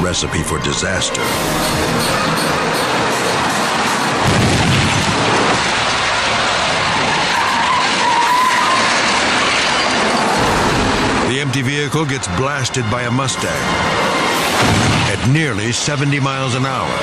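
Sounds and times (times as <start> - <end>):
high squeal: 0.9 - 4.0, 6.8 - 14.6
fast traffic rushing past: 1.1 - 17.0.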